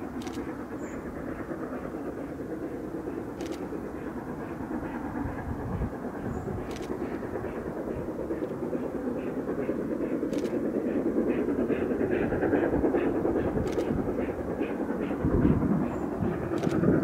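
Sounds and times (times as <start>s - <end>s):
train rumbling on track: 0.0s - 17.0s
faint sharp clicks: 0.2s - 0.6s, 3.4s - 3.8s, 6.7s - 7.1s, 10.3s - 10.7s, 13.6s - 13.9s, 16.6s - 16.9s.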